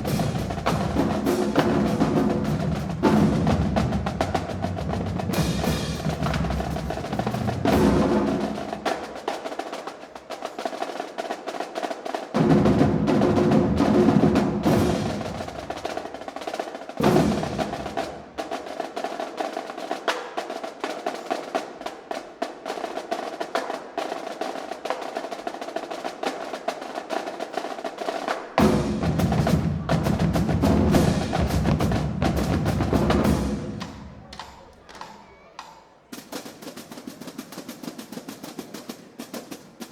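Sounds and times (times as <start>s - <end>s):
snare drum rolls: 0.0s - 39.9s
bass drums: 28.6s - 34.0s.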